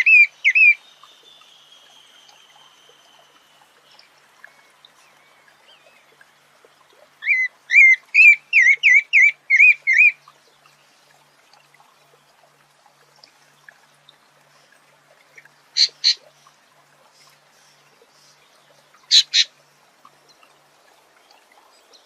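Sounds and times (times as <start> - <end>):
thrush singing whistled notes: 0.0 - 5.4.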